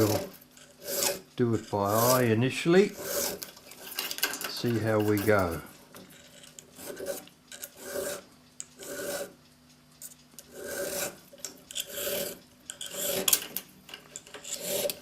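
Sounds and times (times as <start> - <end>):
file rasping on steel: 0.0 - 3.5, 6.2 - 9.4, 10.5 - 13.5, 14.2 - 15.0.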